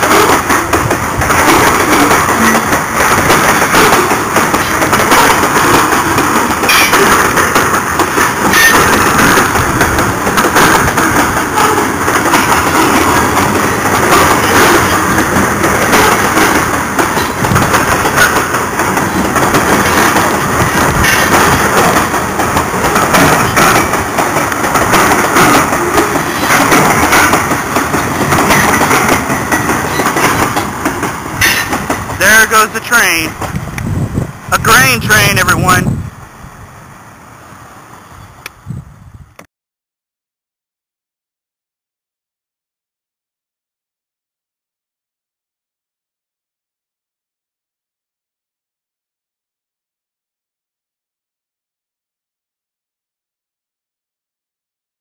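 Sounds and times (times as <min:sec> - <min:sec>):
wheels clacking over rail joints: 0:00.0 - 0:35.8
freight train wheels rumbling: 0:00.0 - 0:39.5.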